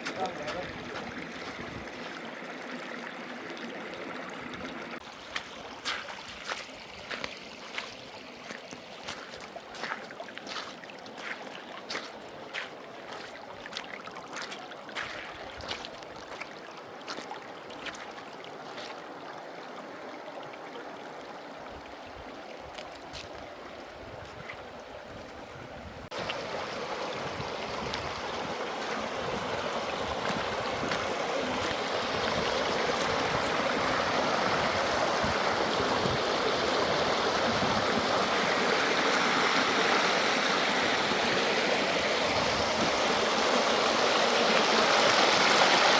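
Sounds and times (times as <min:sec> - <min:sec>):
rushing water: 0:00.0 - 0:45.9.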